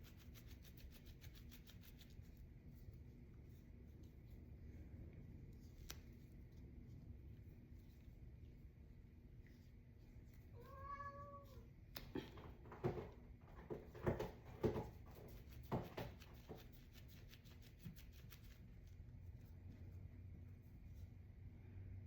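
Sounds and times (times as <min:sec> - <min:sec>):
cat meowing: 0:10.6 - 0:11.6.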